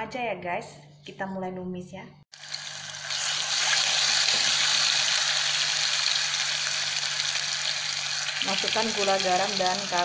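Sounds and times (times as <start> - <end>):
paste sizzling in hot oil: 2.3 - 10.0.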